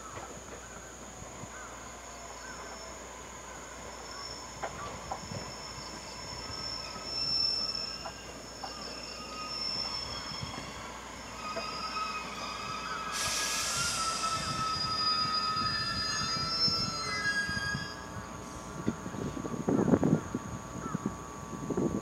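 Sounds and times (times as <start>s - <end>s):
train wheels squealing: 2.0s - 19.4s.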